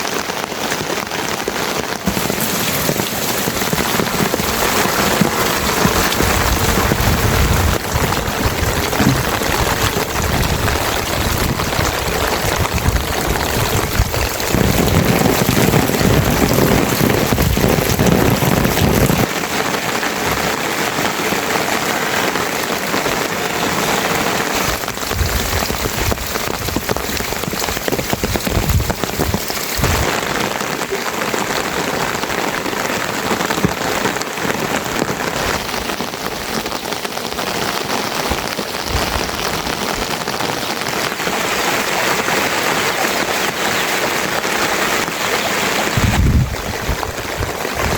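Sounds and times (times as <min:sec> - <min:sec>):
heavy rain falling: 0:00.0 - 0:47.9
low rumble: 0:06.3 - 0:12.0.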